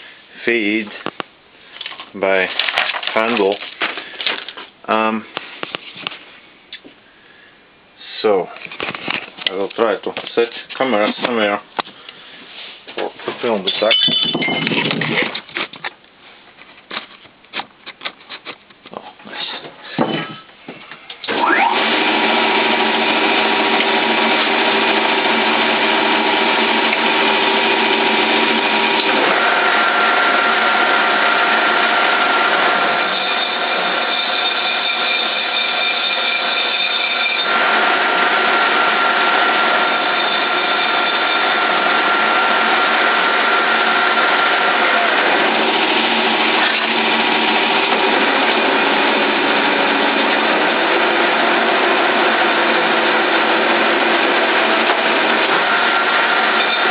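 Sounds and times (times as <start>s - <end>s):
lathe gearbox whine: 21.2s - 56.9s
parting tool cutting metal: 32.9s - 37.7s, 54.8s - 56.9s.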